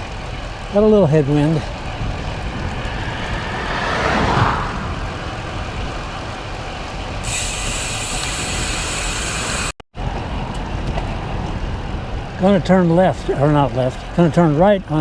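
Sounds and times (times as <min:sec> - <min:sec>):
wind rushing over microphone: 0:00.4 - 0:07.9
motor vehicle passing: 0:01.1 - 0:07.2.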